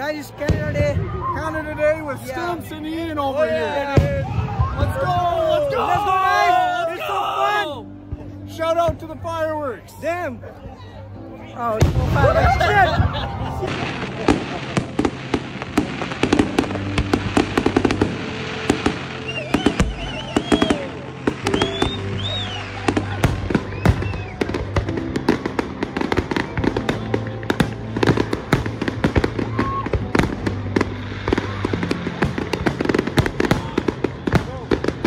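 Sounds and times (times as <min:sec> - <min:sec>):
fireworks bangs and crackles: 0:00.0 - 0:06.4, 0:11.6 - 0:35.0
music playing: 0:00.0 - 0:35.0.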